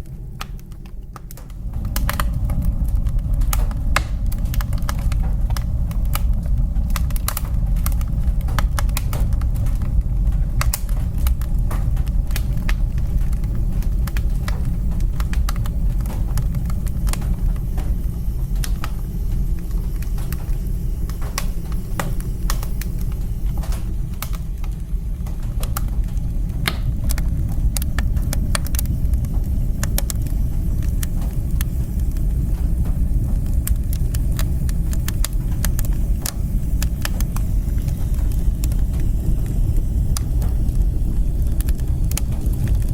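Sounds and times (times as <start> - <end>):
low fire rumble: 0.0 - 42.9
wood fire crackling and popping: 0.0 - 42.9.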